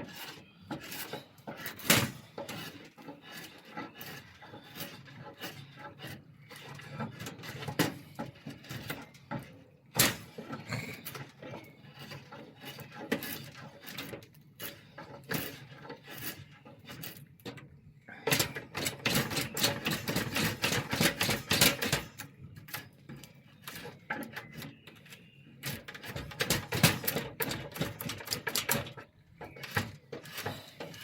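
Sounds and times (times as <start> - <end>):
rough scraping on wood: 0.0 - 17.2.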